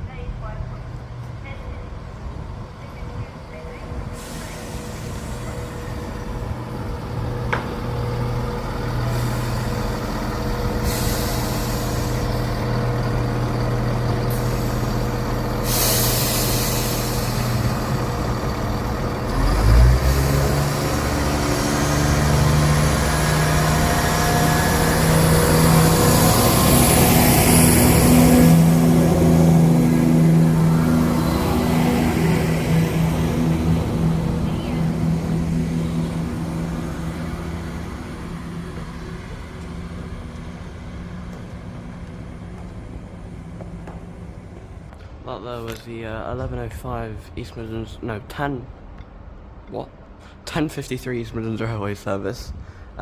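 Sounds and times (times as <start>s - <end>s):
train diesel engines running: 0.0s - 53.0s
air brakes hissing: 4.0s - 6.5s, 9.0s - 12.8s, 14.2s - 29.2s
engine thump: 7.4s - 8.0s.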